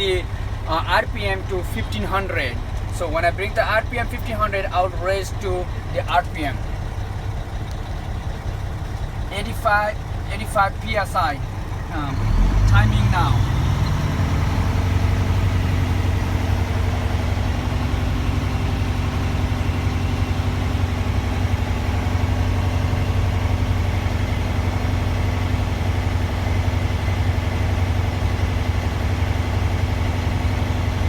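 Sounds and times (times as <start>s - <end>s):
diesel truck engine running: 0.0s - 31.0s.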